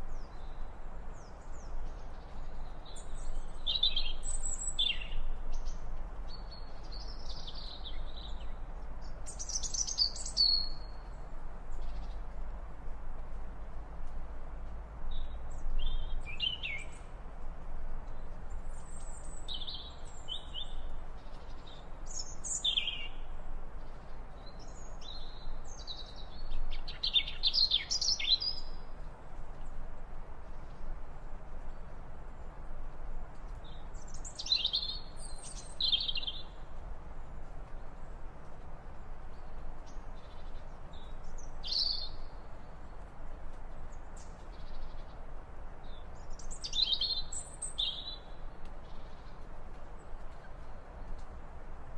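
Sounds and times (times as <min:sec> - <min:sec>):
steady background hiss: 0:00.0 - 0:51.9.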